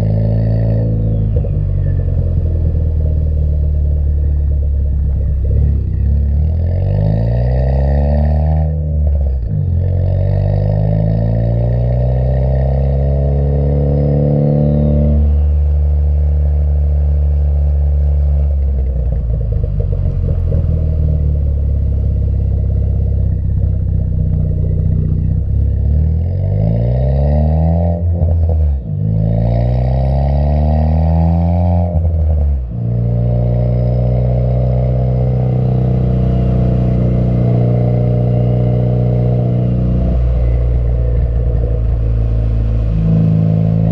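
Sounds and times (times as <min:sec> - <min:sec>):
car engine and exhaust revving: 0:00.0 - 0:43.9.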